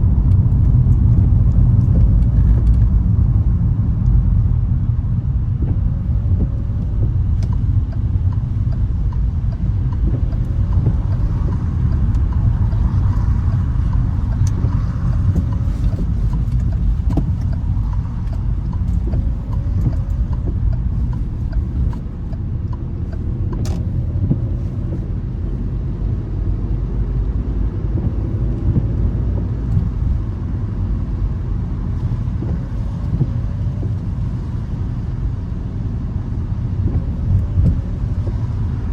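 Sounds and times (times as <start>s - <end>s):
car tyres and engine rumble: 0.0s - 38.9s
faint ticks: 6.4s - 25.1s.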